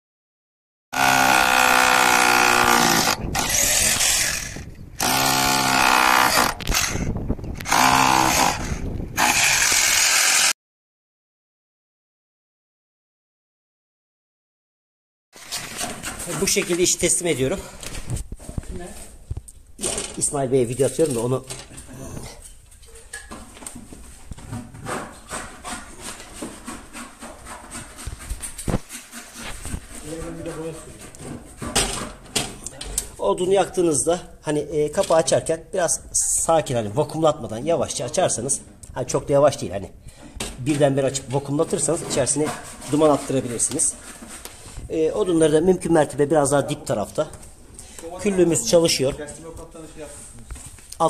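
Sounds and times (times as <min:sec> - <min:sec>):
power tool motor running: 0:01.0 - 0:06.9, 0:07.6 - 0:10.5.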